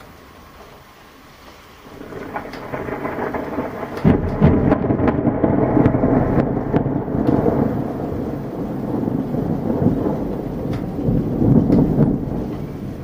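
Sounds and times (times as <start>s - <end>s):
rain falling: 0.0s - 13.0s
thunder rumbling and cracking: 1.8s - 13.0s.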